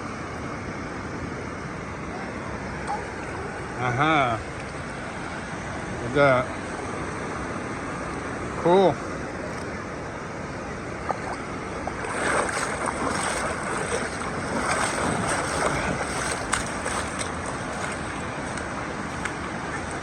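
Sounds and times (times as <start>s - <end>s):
ocean surf washing: 10.8s - 20.0s.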